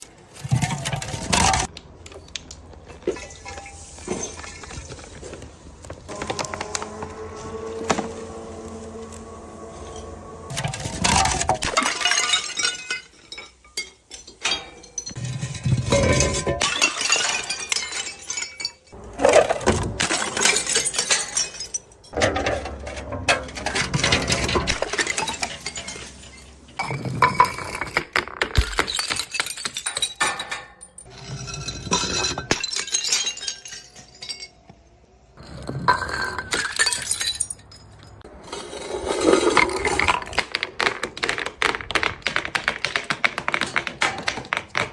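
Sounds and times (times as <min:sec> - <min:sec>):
glass bottles smashing: 0:00.4 - 0:01.7, 0:03.1 - 0:05.4, 0:08.3 - 0:38.3
glass pieces tinkling: 0:09.0 - 0:19.0, 0:28.6 - 0:34.9, 0:35.8 - 0:38.2.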